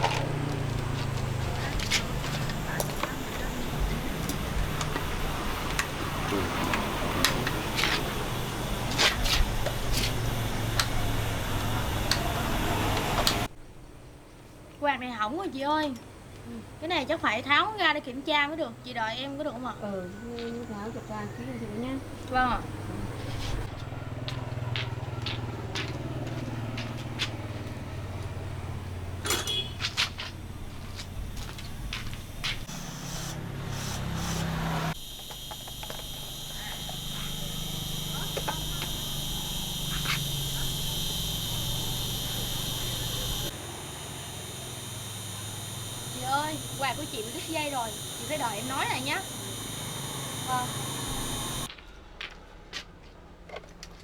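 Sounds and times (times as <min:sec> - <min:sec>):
electric fan clicks and knocks: 0:00.0 - 0:13.5, 0:33.3 - 0:43.6
low engine hum: 0:00.0 - 0:13.6
low hum: 0:34.9 - 0:51.7.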